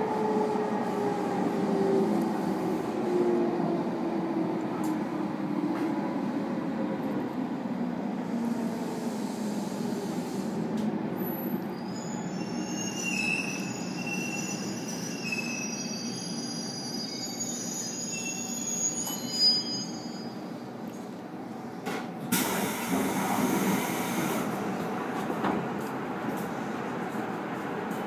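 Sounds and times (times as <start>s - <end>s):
wheels and brakes squealing: 11.2s - 20.5s.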